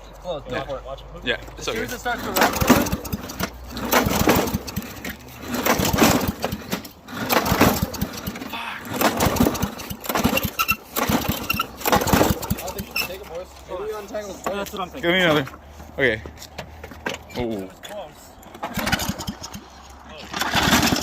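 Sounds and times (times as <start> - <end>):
lawn mower engine sputtering and popping: 1.6 - 13.7, 18.4 - 21.0.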